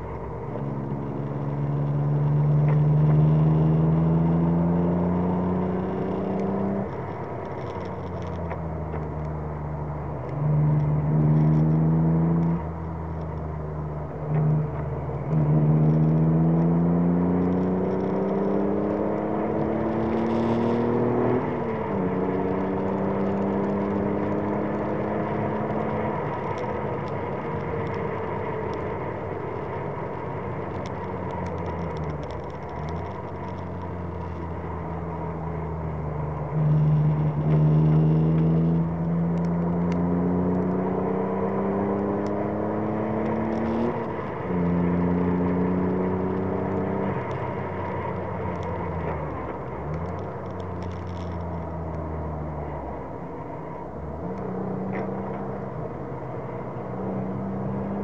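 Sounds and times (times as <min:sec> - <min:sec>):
car engine accelerating: 0:00.0 - 0:58.0
gear change: 0:00.0 - 0:58.0.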